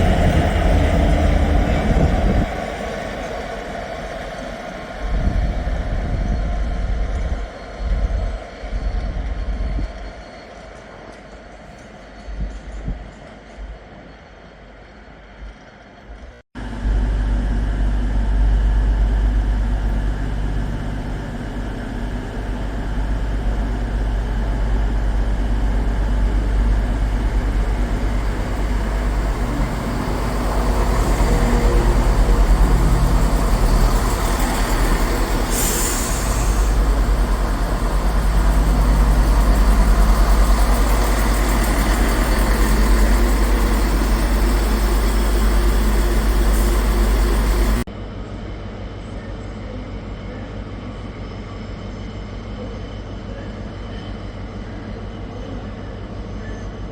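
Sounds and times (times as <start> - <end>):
diesel train engine running: 0.0 - 11.6, 16.6 - 47.9
air hiss: 26.3 - 47.9.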